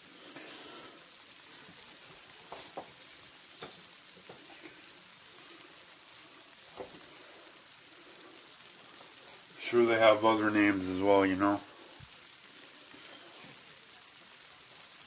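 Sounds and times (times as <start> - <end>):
chicken sizzling in a skillet: 0.0 - 15.0
small frying pops: 0.0 - 15.0.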